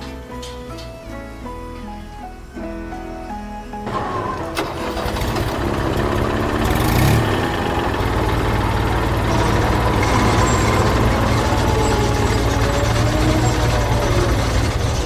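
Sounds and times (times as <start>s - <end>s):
heavy vehicle engine rumbling: 3.8s - 15.0s.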